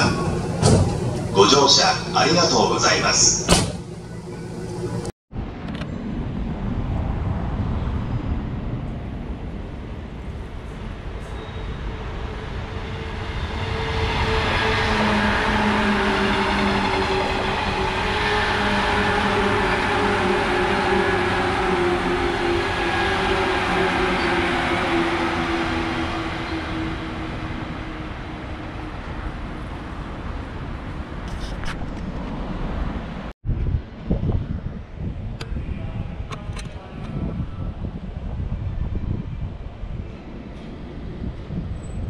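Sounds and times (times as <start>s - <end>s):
falling humming tone: 0.0s - 7.4s, 8.1s - 31.0s
electric train passing: 0.0s - 33.3s.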